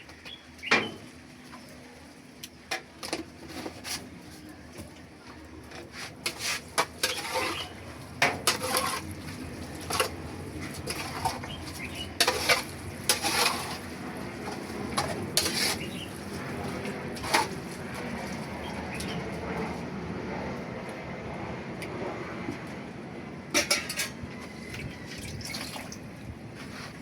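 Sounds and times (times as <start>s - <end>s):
utensil clinking against pot: 6.2s - 9.1s, 12.2s - 13.8s, 23.6s - 24.2s.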